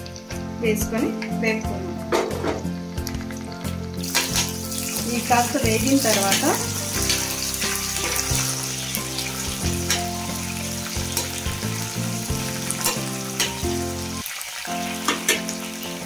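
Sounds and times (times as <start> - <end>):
chillies sizzling in hot oil: 0.0 - 16.0.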